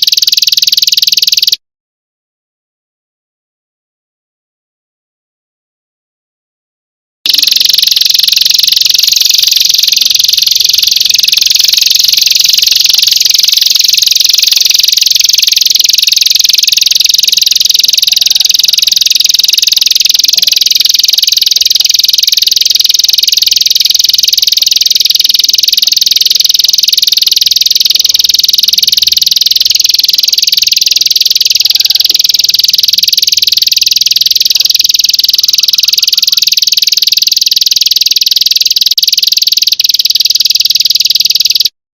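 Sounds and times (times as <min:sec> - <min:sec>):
high-pitched buzzing bird trill: 0:07.3 - 0:26.0.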